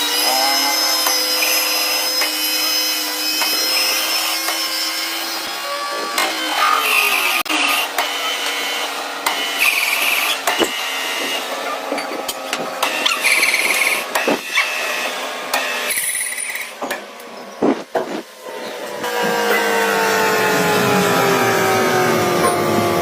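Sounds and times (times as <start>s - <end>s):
cutting tool scraping metal: 0.0s - 5.3s, 6.0s - 16.8s
lathe humming: 18.4s - 23.0s.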